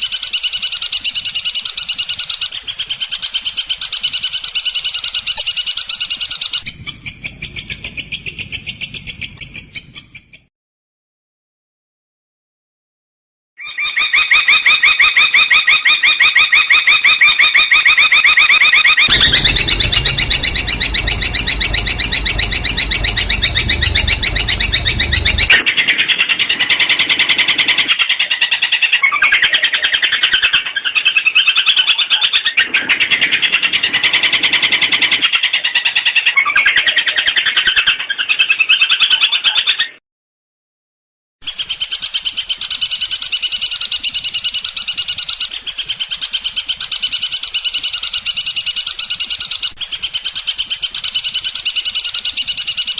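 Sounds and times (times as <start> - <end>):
low rumble: 19.1 - 25.6.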